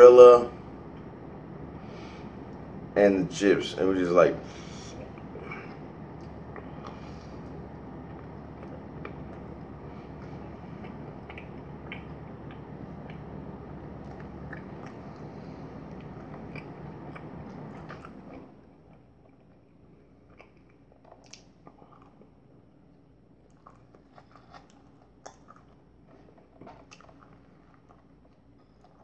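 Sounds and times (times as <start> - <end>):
chewing and biting bread: 4.6 - 29.0
wet mouth clicks: 10.8 - 13.3.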